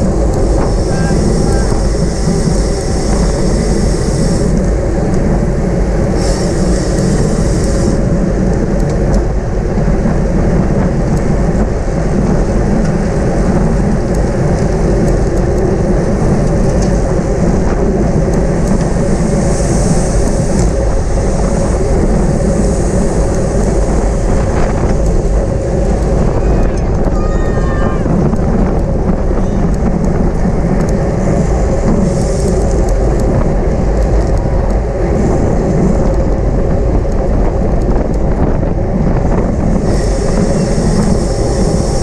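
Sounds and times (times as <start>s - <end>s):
bicycle tyre road noise: 0.0s - 42.0s
wind rushing over microphone: 0.0s - 42.0s.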